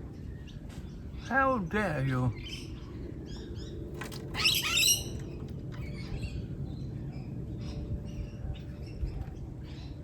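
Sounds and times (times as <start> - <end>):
lorikeet screeching: 4.4 - 5.2.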